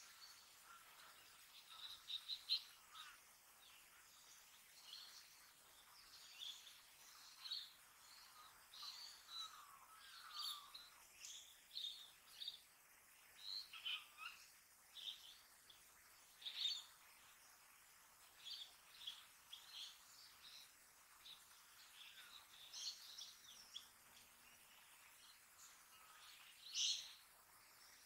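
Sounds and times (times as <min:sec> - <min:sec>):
birds chirping: 0:00.0 - 0:12.7, 0:13.3 - 0:28.0.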